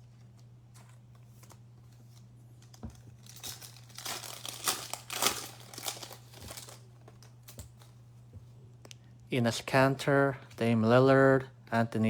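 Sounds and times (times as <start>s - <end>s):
low electrical hum: 0.0s - 12.0s
wrapper tearing and crinkling: 2.6s - 7.6s.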